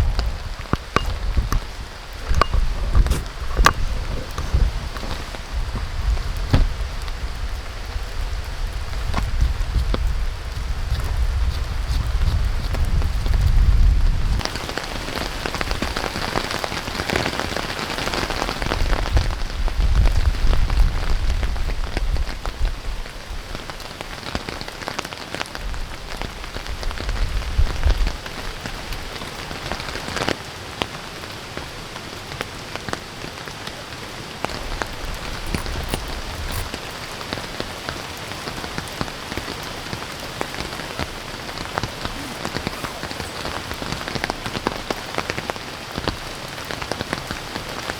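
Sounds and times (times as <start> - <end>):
wind buffeting microphone: 0.0 - 23.5
heavy rain falling: 0.0 - 47.9
raindrops ticking on surfaces: 0.0 - 47.9.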